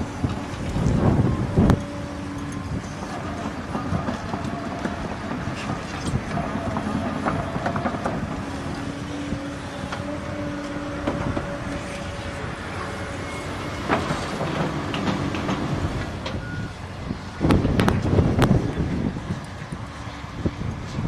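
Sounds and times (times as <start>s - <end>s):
heavy construction machinery running: 0.0s - 21.0s
machinery whine: 0.0s - 21.0s
clanks and knocks: 1.7s - 8.8s, 13.8s - 16.4s.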